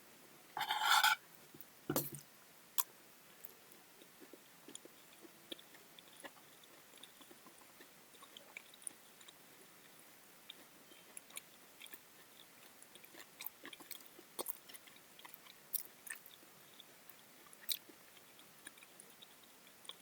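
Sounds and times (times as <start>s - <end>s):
person chewing fruit: 10.5s - 16.9s.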